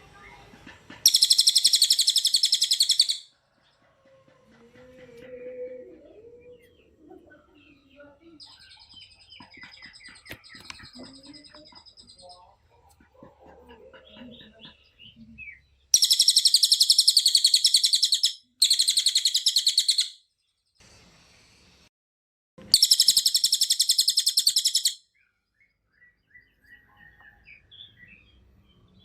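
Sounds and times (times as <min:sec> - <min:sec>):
soft bird chirps: 0:00.2 - 0:04.0, 0:04.8 - 0:21.7, 0:22.6 - 0:29.0
bird trilling: 0:01.0 - 0:03.3, 0:14.3 - 0:20.2, 0:22.6 - 0:25.1.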